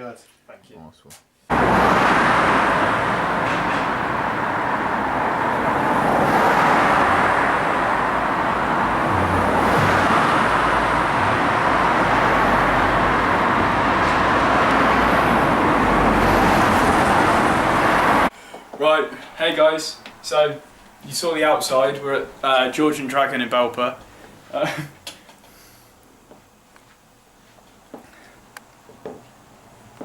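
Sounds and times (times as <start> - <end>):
road traffic noise: 1.5 - 18.8.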